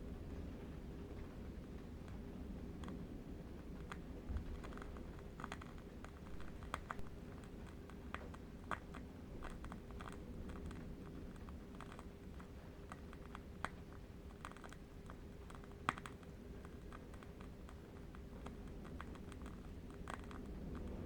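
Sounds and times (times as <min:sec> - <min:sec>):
low wind rumble: 0:00.0 - 0:21.0.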